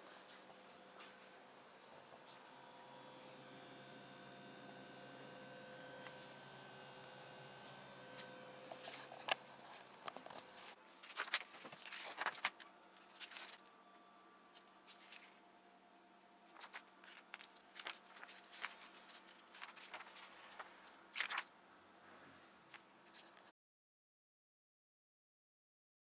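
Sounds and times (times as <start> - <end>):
high whining tones: 0.0 - 10.8
refrigerator hum: 0.0 - 23.0.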